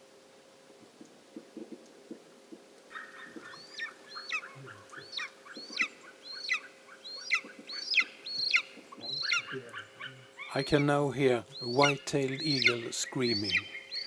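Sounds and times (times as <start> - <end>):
eagle yelping calls: 2.9 - 10.8, 11.5 - 14.0.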